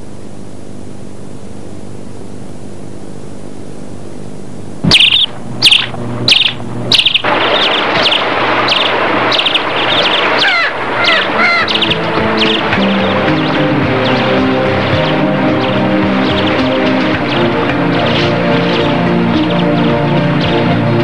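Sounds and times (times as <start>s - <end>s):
low hum: 0.0s - 21.0s
tape hiss: 0.0s - 21.0s
steady rushing noise: 4.8s - 20.9s
whistled bird calls: 4.9s - 17.5s
bird chirps: 4.9s - 19.0s.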